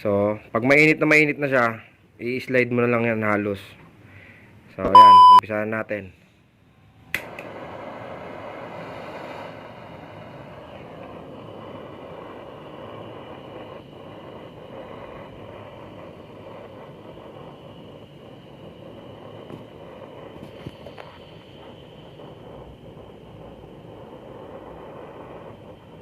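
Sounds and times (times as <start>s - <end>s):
torch lighting click: 7.1s - 8.7s
torch flame rushing: 7.1s - 26.0s.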